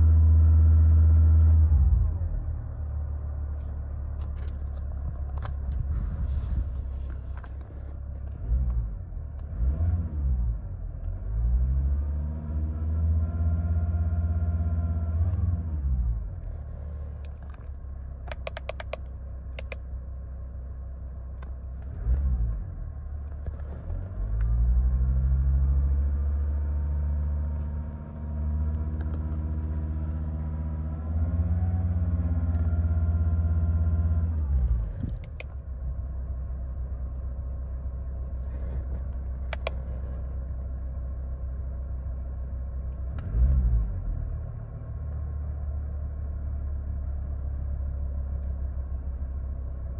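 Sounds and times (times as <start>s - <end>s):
sharp clicks: 16.6s - 19.8s, 35.1s - 35.6s, 38.4s - 40.0s.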